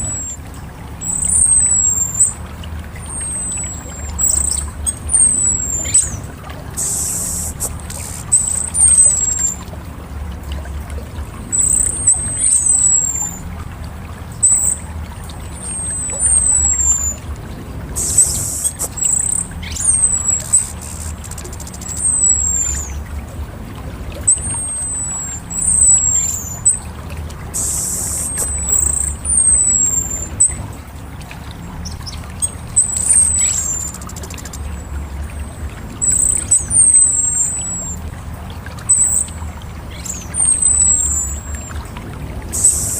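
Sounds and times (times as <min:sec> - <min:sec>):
thrush whistled calls: 0:00.0 - 0:09.8, 0:10.5 - 0:42.9
hiss bursts: 0:06.8 - 0:08.2
low rumble: 0:09.0 - 0:27.6.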